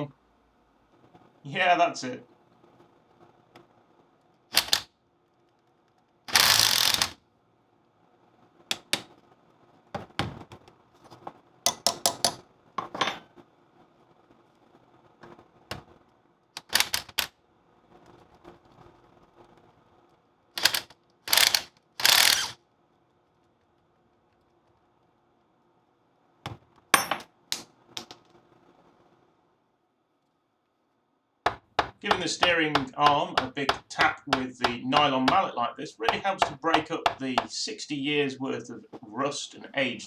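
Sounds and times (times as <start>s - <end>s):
ratchet wrench clicking: 4.6s - 4.8s, 6.3s - 7.2s, 16.6s - 17.3s, 20.6s - 22.6s.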